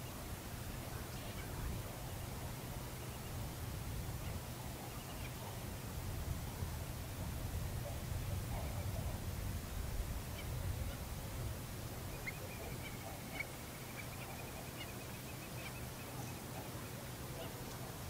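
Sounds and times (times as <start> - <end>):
birds chirping: 11.9 - 18.0.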